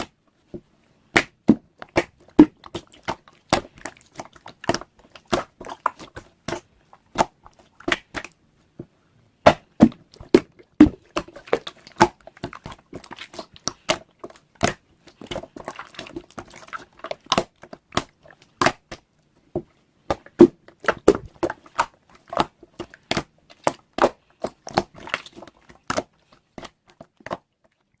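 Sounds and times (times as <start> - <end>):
close-up crinkles and taps: 9.8 - 28.0.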